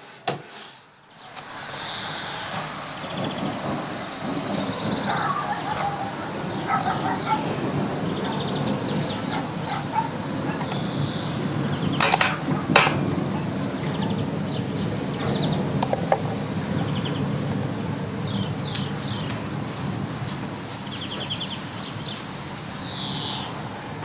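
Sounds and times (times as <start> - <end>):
small birds chirping: 1.0 - 23.7
steady rushing noise: 1.0 - 24.0.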